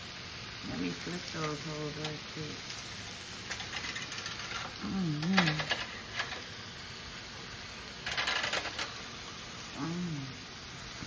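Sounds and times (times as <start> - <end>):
food sizzling in metal pans: 0.0 - 11.0
metal pan clinking and scraping: 3.5 - 4.7
person humming: 4.8 - 5.7, 9.8 - 10.4.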